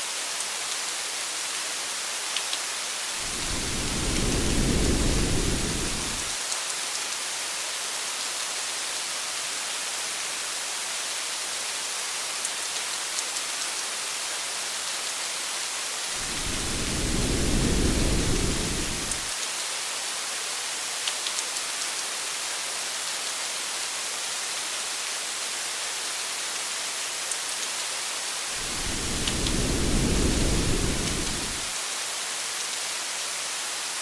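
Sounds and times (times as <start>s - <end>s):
low rumbles of thunder: 3.2s - 6.4s, 16.2s - 19.3s, 28.6s - 31.7s.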